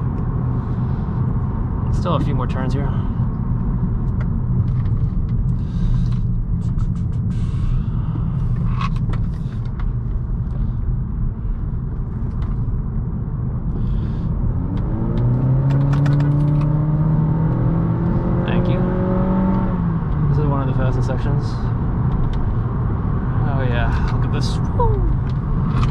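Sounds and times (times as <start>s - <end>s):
car engine droning: 0.0s - 25.9s
road noise: 0.0s - 25.9s.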